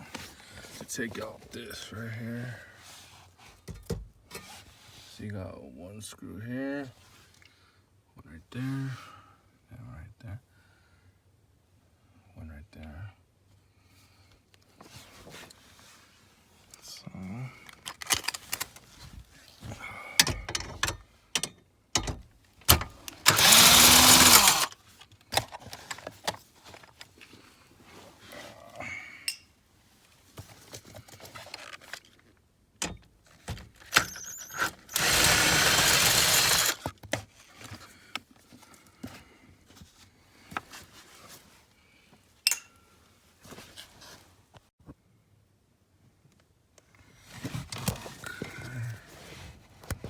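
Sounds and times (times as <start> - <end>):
clicks and knocks of handling: 17.6 - 19.0
cordless power driver spinning: 22.8 - 24.8, 34.0 - 36.9.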